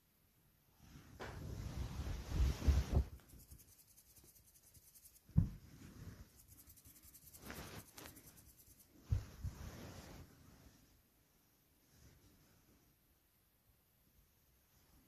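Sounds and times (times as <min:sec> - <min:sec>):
faint rubbing and rustling: 0:00.8 - 0:13.1.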